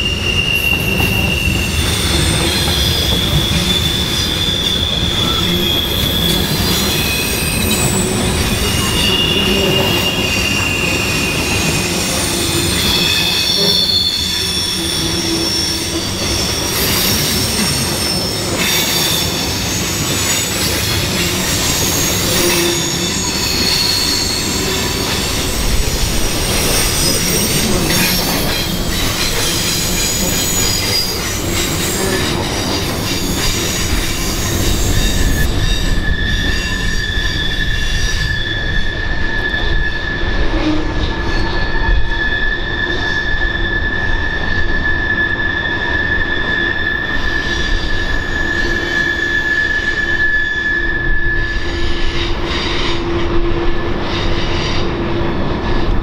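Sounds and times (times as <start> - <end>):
train rumble: 0.0 - 56.0
train wheels squealing on rails: 0.0 - 56.0.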